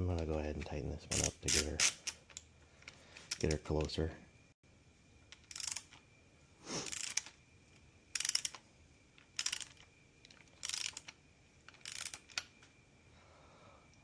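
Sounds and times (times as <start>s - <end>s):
socket ratchet clicking: 1.1s - 2.5s, 5.3s - 6.0s, 6.9s - 7.4s, 8.1s - 8.6s, 9.2s - 12.6s.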